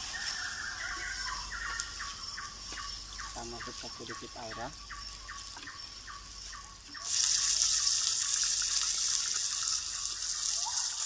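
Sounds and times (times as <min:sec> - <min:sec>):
loud steady sizzle: 0:03.0 - 0:11.0
water poured into hot pan: 0:07.0 - 0:11.0.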